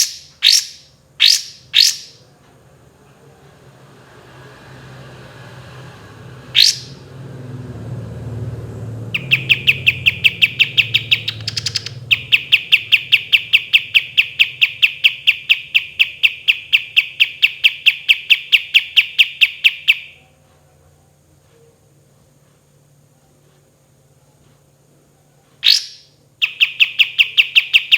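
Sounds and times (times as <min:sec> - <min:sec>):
bird whistle and trill: 0:00.0 - 0:02.2, 0:06.5 - 0:07.0, 0:09.1 - 0:20.2, 0:25.6 - 0:27.9.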